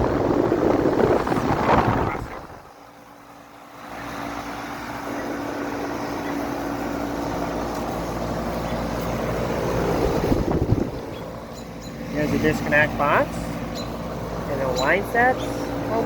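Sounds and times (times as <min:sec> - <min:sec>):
air conditioner unit humming: 0:00.0 - 0:16.0.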